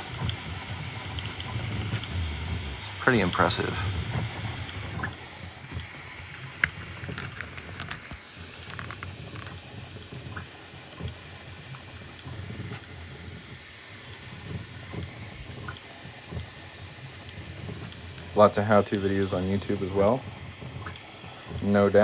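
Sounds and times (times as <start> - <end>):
printer whirring moves: 0.0 - 22.0.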